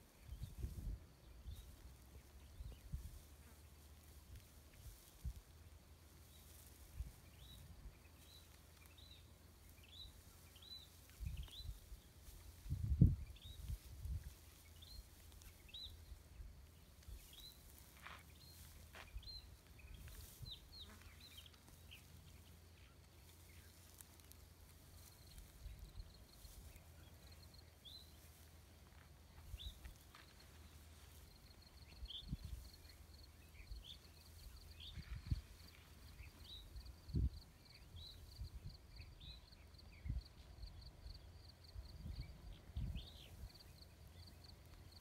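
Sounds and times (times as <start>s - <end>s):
soft rustles: 0.0s - 38.4s
small birds chirping: 0.0s - 45.0s.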